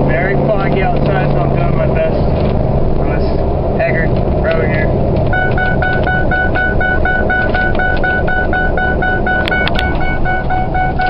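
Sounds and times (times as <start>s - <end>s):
truck engine drone: 0.0s - 11.0s
seatbelt warning chime beeping: 5.3s - 11.0s.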